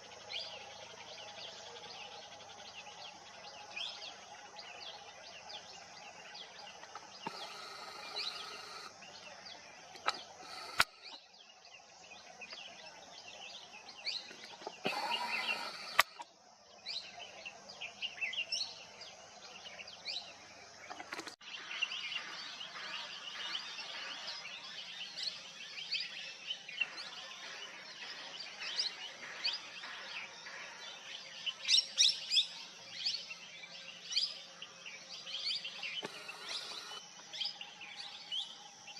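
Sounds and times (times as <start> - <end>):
birds chirping: 0.0 - 38.9
sharp clicks: 7.2 - 8.9, 10.0 - 11.2, 14.8 - 16.2, 36.0 - 37.0.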